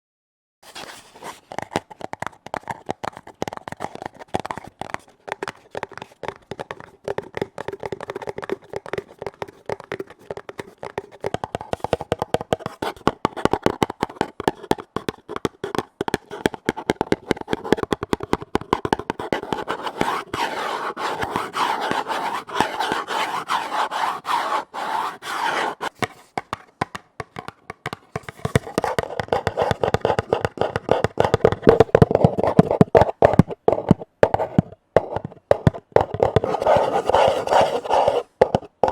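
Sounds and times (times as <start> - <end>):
rapid tapping on lids: 1.4 - 38.9.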